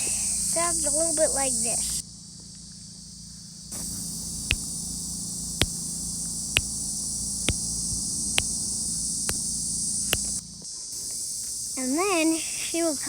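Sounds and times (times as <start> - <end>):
cicada chorus buzzing: 0.0 - 13.0
cicada wing-flick clicks: 0.0 - 13.0.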